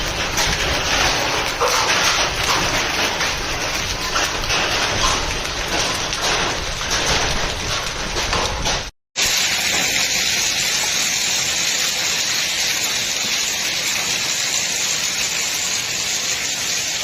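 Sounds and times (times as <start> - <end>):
rattling storm noise: 0.0 - 11.6
heavy rain hissing: 9.2 - 17.0.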